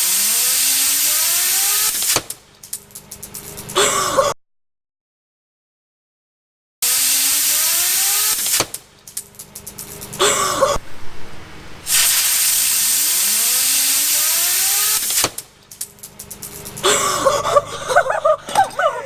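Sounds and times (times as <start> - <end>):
compressed air hissing: 0.0 - 2.2, 6.8 - 8.8, 11.9 - 15.5.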